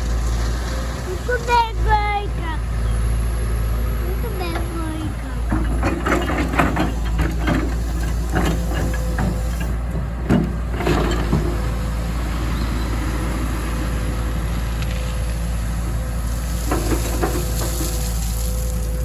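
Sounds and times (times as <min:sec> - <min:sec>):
excavator diesel engine running: 0:00.0 - 0:19.0
irregular knocks and clatters: 0:04.1 - 0:11.9, 0:16.6 - 0:18.2.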